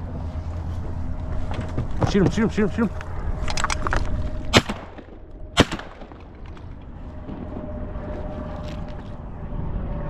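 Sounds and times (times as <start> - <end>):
shotgun shots with echo: 4.5 - 6.4.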